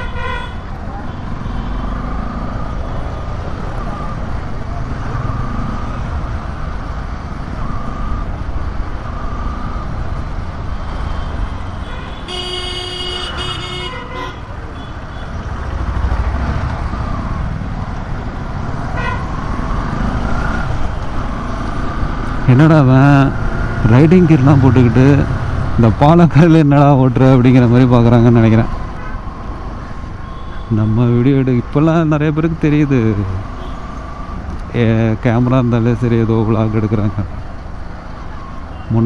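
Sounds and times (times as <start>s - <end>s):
vehicle horn: 0.0s - 1.9s, 10.8s - 15.4s, 18.9s - 19.3s
motorcycle engine and road rumble: 0.0s - 39.0s.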